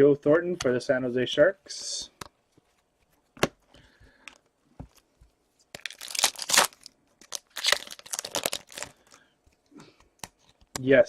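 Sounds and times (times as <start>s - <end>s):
wrapper crinkling and tearing: 5.7s - 9.2s.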